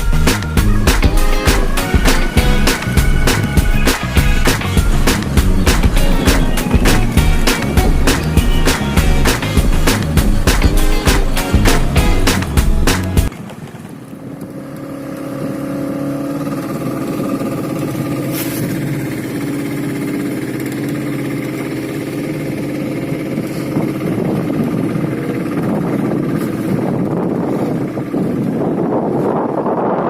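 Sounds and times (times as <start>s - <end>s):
rough rushing noise: 0.0s - 13.3s
boat engine running: 0.0s - 30.0s.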